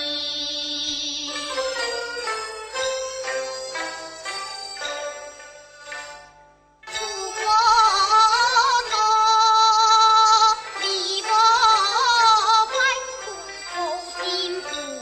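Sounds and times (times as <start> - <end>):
instrumental accompaniment: 0.0 - 15.0
woman singing opera: 7.0 - 15.0.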